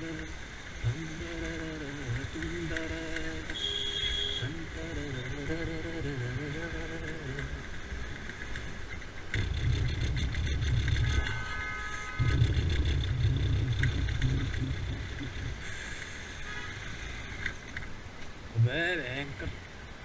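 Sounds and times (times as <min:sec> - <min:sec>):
horn-like tone: 0:03.5 - 0:04.6, 0:10.5 - 0:15.7, 0:16.3 - 0:17.0
wind rumble on microphone: 0:04.5 - 0:11.4, 0:12.2 - 0:15.8
motorbike engine: 0:09.3 - 0:16.2.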